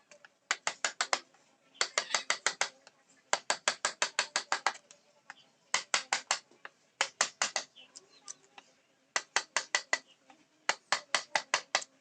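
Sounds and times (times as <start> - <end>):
mallet tapping chisel into wood: 9.2 - 10.0.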